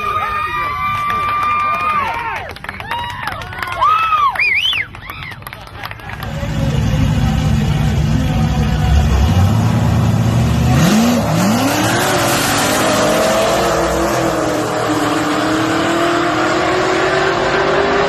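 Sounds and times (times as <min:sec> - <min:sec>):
car engine revving and accelerating: 0:06.2 - 0:18.0.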